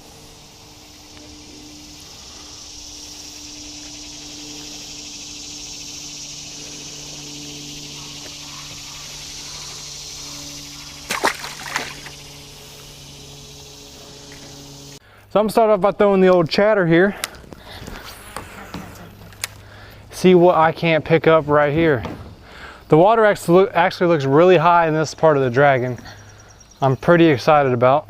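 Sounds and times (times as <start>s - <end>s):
low hum: 0.0s - 16.5s
insects buzzing: 0.0s - 28.0s.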